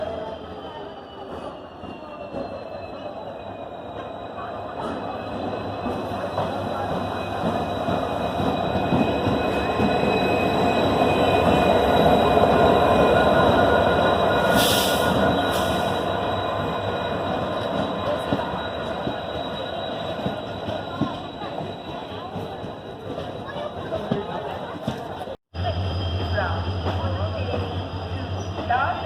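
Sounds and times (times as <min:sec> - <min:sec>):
train wheels squealing on rails: 0:00.0 - 0:29.0.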